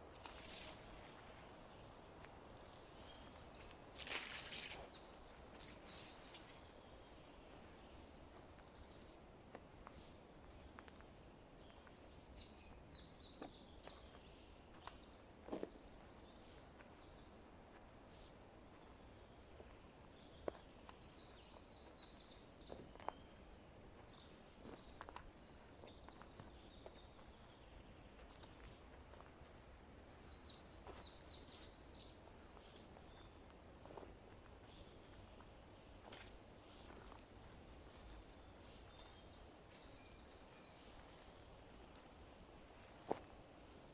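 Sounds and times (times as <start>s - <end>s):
faint forest background: 0.0s - 43.9s
rustling: 0.1s - 1.2s.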